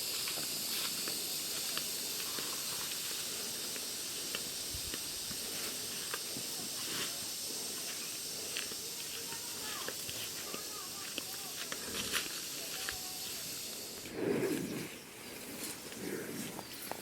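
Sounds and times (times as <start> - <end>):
steady high-pitched hiss: 0.0 - 17.0.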